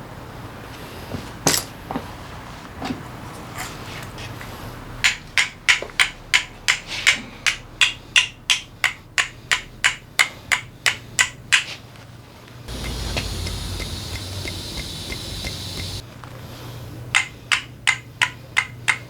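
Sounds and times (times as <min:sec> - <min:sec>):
hammer tapping on metal: 0:12.7 - 0:16.0, 0:17.2 - 0:19.0.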